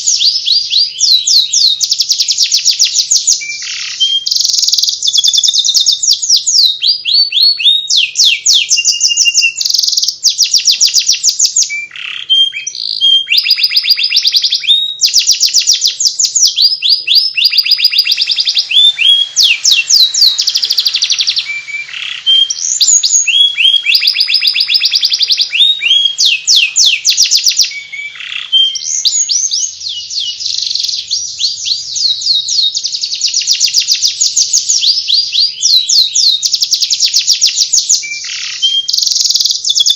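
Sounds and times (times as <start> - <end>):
canary twittering trills: 0.0 - 39.9.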